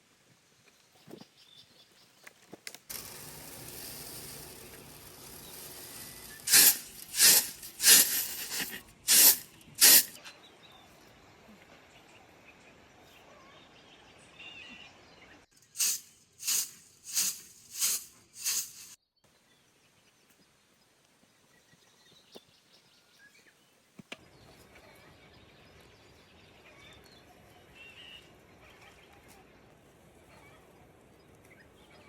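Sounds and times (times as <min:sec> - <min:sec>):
hissing swish strokes: 0:02.9 - 0:10.2, 0:15.8 - 0:19.0.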